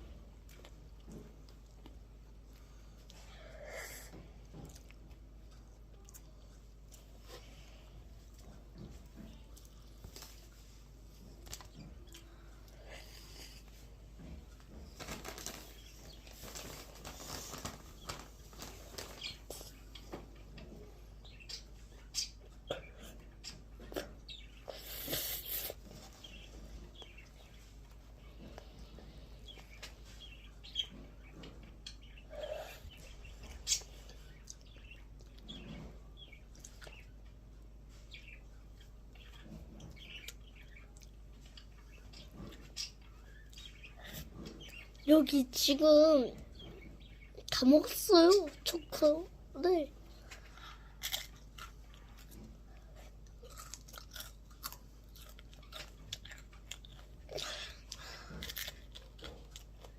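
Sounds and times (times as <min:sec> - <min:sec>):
person chewing ice cream: 0:50.4 - 0:59.9.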